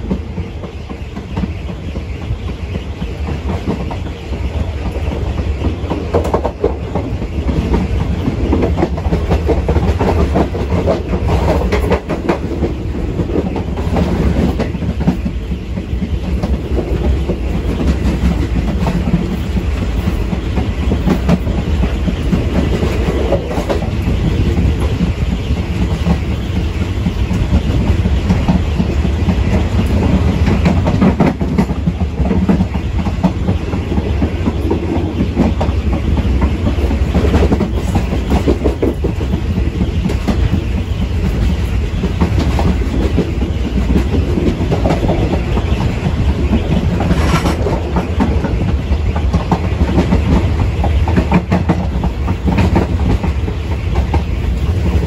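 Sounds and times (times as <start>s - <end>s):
train rumbling on track: 0.0s - 55.0s
wheels clicking over rail joints: 0.0s - 55.0s.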